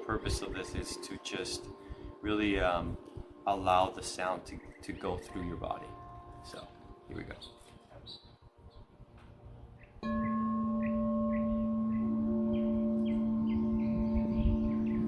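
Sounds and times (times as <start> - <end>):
singing bowl ringing: 10.0 - 15.0.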